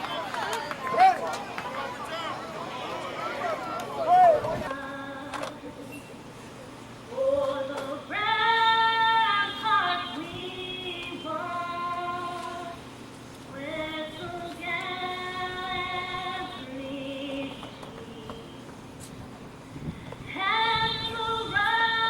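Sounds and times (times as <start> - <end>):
woman singing: 4.7 - 5.8, 7.1 - 12.8, 13.5 - 18.7, 20.3 - 22.0.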